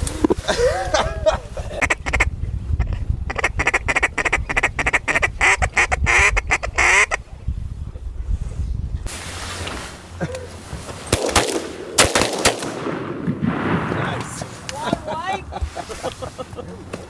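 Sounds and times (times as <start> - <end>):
steady low rumble: 0.0 - 16.9
duck quacking: 3.3 - 7.2.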